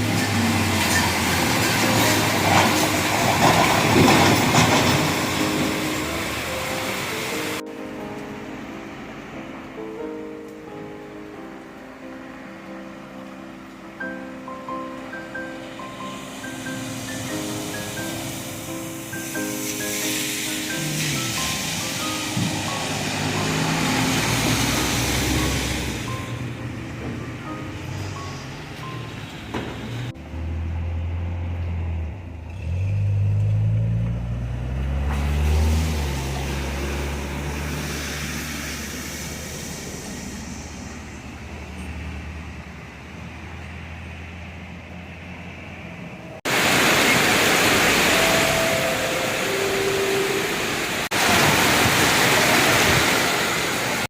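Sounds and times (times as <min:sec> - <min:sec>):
vehicle engine humming: 0:00.0 - 0:54.0
heavy rain hiss: 0:15.4 - 0:26.3, 0:35.3 - 0:41.3, 0:46.5 - 0:54.0.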